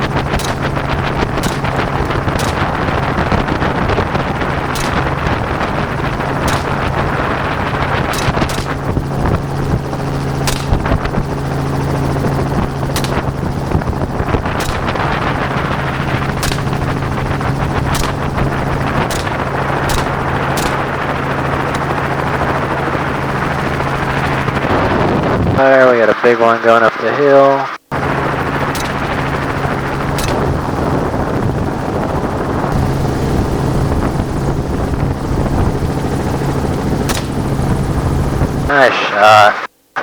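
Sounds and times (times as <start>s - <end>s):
rifle shots: 0.0s - 9.8s, 10.4s - 11.4s, 12.8s - 22.0s, 28.7s - 29.3s, 30.2s - 31.0s, 37.1s - 37.7s
helicopter rotor and engine drone: 0.0s - 39.7s.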